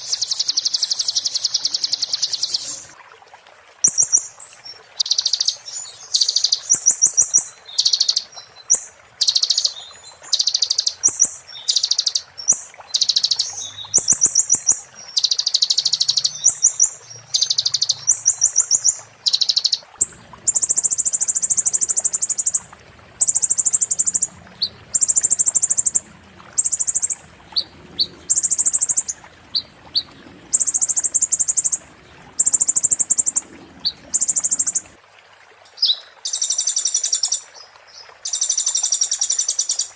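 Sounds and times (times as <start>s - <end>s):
songbird trilling and rattling: 5.0s - 19.8s.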